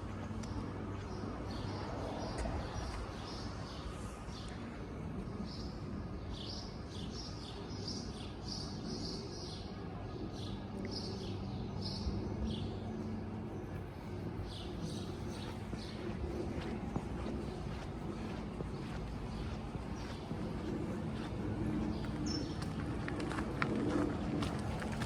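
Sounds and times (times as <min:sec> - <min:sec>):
steady low hum: 0:00.0 - 0:25.0
small birds chirping: 0:05.3 - 0:22.9.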